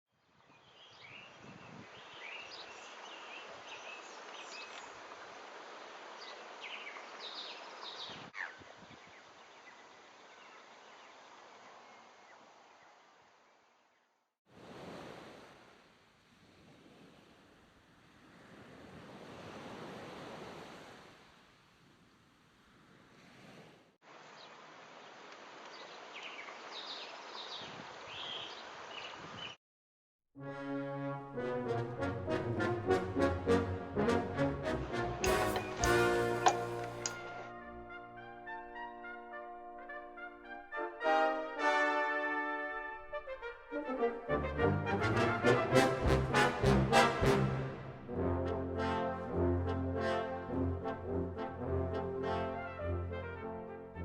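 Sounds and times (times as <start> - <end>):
background hiss: 0.4 - 13.9, 35.2 - 37.5
sharp click: 35.2 - 37.3.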